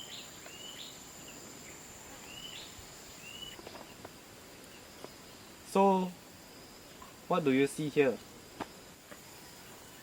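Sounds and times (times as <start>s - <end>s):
bird chirping: 0.0s - 5.6s
insect drone: 0.0s - 10.0s.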